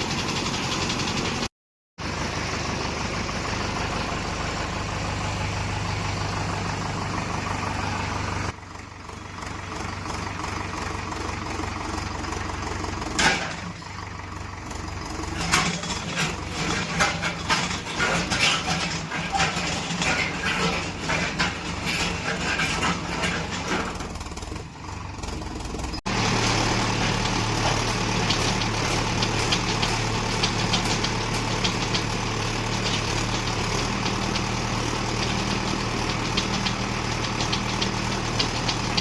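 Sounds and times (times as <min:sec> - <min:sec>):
tractor engine running: 0:00.0 - 0:39.0
sharp metal clanks and knocks: 0:13.2 - 0:14.0, 0:15.3 - 0:24.4, 0:27.0 - 0:34.5.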